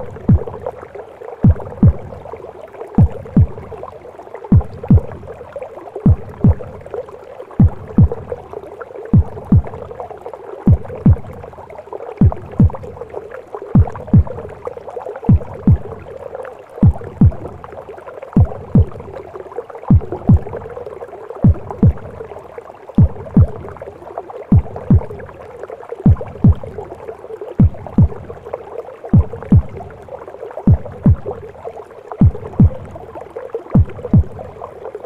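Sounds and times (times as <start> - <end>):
heartbeat thumps: 0.0 - 0.7, 1.4 - 2.4, 3.0 - 3.9, 4.5 - 5.4, 6.0 - 6.9, 7.6 - 8.5, 9.1 - 10.0, 10.7 - 11.6, 12.2 - 13.1, 13.8 - 16.2, 16.8 - 17.7, 18.4 - 19.2, 19.9 - 20.8, 21.4 - 22.3, 22.9 - 23.9, 24.5 - 25.4, 26.0 - 27.0, 27.6 - 28.5, 29.1 - 30.1, 30.7 - 31.5, 32.2 - 34.7.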